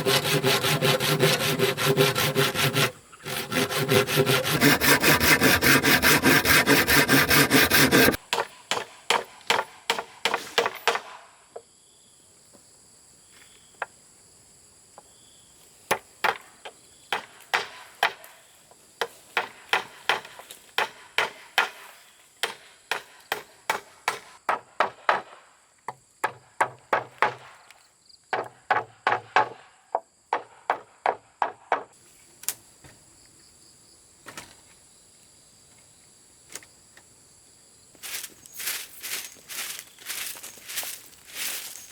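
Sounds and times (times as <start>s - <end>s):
bamboo being sawn: 0.0s - 8.2s
sharp blows striking bamboo: 7.2s - 11.3s, 17.1s - 18.3s, 19.0s - 25.4s
high insect trill: 34.8s - 41.9s.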